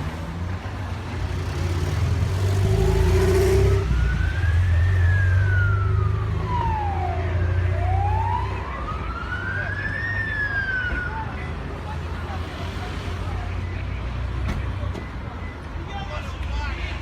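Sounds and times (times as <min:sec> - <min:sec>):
emergency siren wailing: 0:02.3 - 0:11.6.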